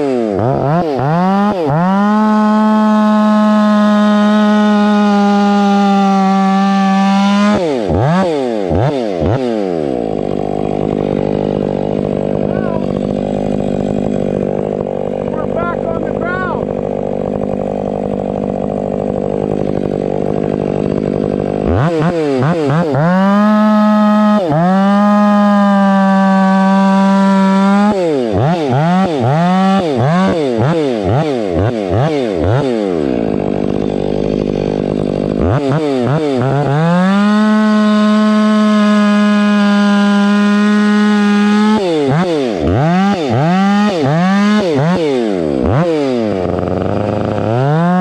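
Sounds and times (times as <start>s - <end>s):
chainsaw revving: 0.0s - 48.0s.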